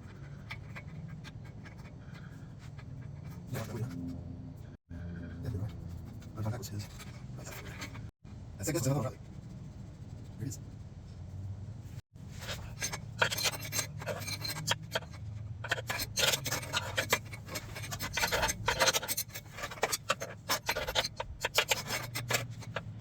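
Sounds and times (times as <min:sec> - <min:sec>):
metallic scraping: 0:00.0 - 0:10.8, 0:11.8 - 0:23.0.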